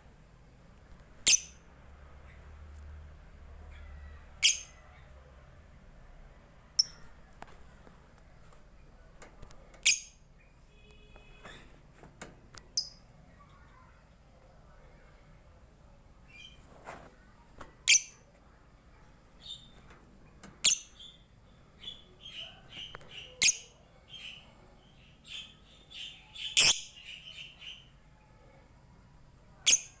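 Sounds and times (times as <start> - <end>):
lovebird twittering chirps: 1.2 - 1.6, 4.4 - 4.8, 25.2 - 27.8.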